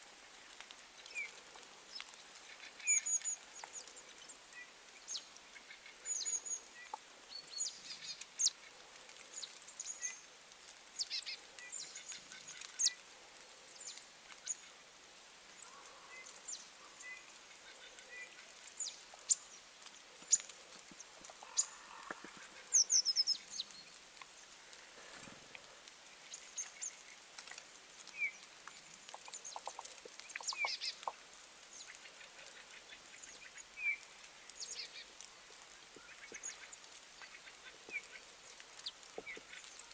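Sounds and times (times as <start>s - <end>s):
birds chirping: 15.6s - 24.5s, 28.1s - 35.1s.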